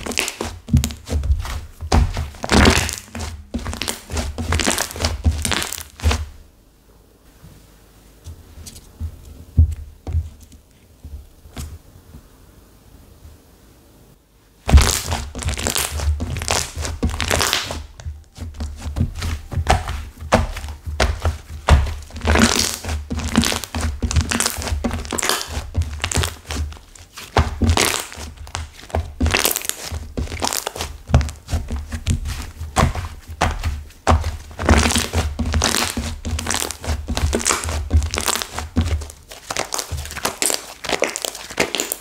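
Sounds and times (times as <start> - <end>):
slime crackling and popping: 0.0 - 6.2, 14.7 - 42.0.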